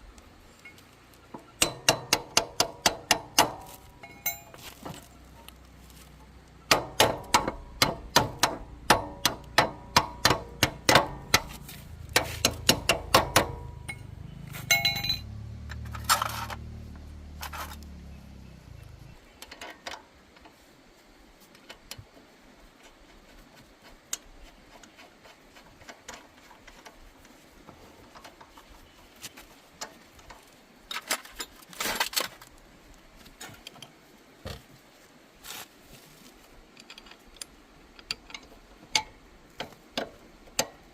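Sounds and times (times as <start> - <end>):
low hum: 0.0 - 19.3
tools knocking on metal: 1.4 - 4.5, 6.7 - 14.1, 14.7 - 15.2
light clicks and clinks: 3.6 - 6.3, 13.6 - 16.7.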